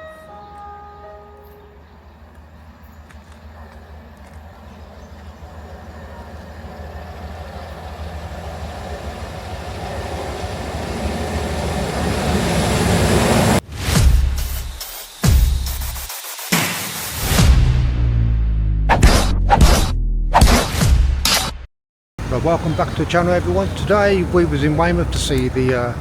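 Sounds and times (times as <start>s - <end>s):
train rumble: 1.4s - 13.6s, 22.2s - 26.0s.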